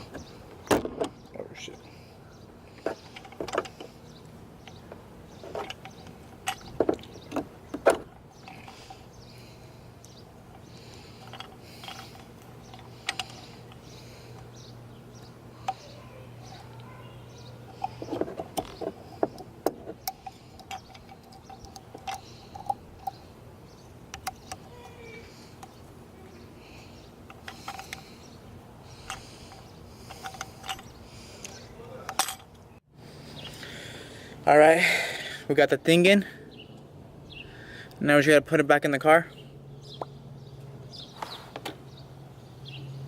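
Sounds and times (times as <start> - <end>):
steady low hum: 0.0 - 38.5
small parts clicking: 2.8 - 9.1, 10.0 - 14.6, 17.7 - 23.3, 24.0 - 26.0, 26.6 - 32.7.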